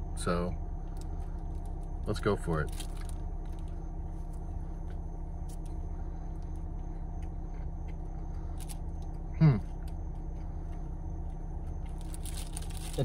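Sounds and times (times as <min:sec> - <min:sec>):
car engine hum: 0:00.0 - 0:13.0.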